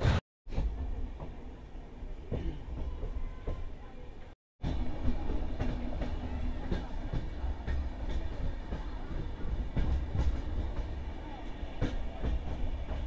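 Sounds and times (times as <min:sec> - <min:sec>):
train low rumble: 0:00.5 - 0:13.0.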